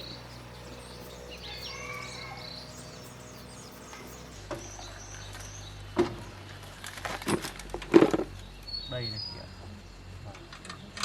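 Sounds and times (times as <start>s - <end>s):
insects calling: 0.0s - 5.2s
steady low hum: 0.0s - 5.3s
birds chirping: 0.0s - 6.0s.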